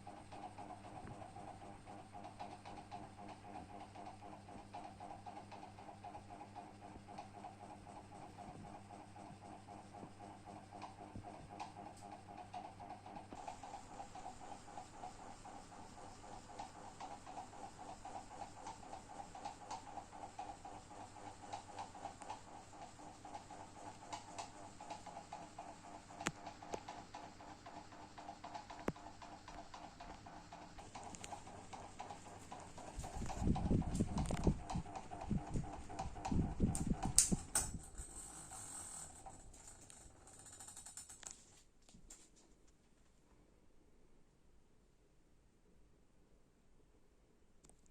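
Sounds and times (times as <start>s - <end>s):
ceiling fan whirring: 0.0s - 44.1s
ceiling fan knocking: 28.4s - 38.0s.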